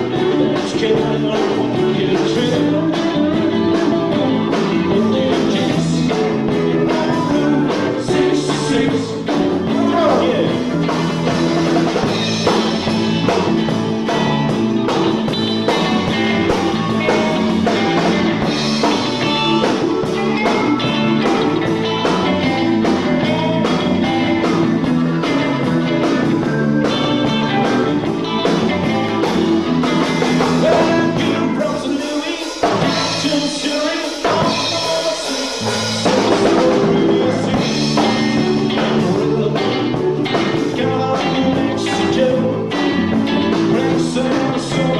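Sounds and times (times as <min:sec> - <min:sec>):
drums: 0:00.0 - 0:44.9
guitar: 0:00.0 - 0:44.9
person singing: 0:00.0 - 0:44.9
rock and roll music: 0:00.0 - 0:44.9.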